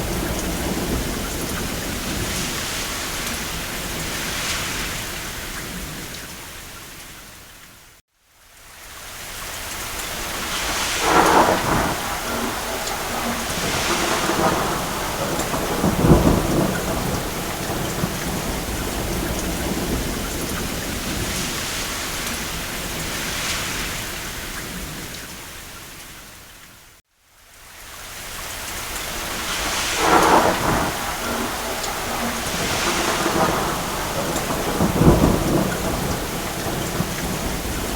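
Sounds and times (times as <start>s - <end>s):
rolling thunder: 0.0s - 6.2s, 10.1s - 25.2s, 29.1s - 37.9s
steady rain: 0.0s - 37.9s.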